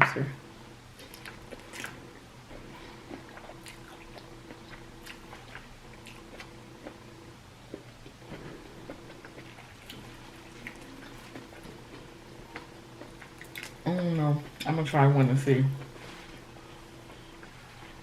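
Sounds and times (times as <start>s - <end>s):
steady low hum: 0.0s - 18.0s
chewing with mouth smacks: 1.0s - 7.0s, 7.7s - 13.8s.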